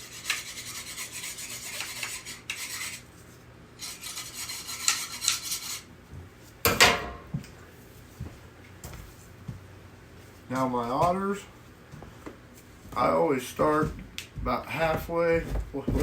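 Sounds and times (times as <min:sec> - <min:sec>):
knife scraping on sharpening steel: 0:00.0 - 0:03.0, 0:03.8 - 0:05.9
metallic clank: 0:06.7 - 0:07.3.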